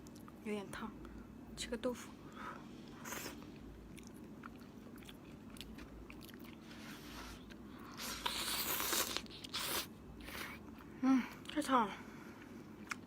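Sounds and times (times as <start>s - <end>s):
person chewing: 2.9s - 10.9s, 12.8s - 13.0s.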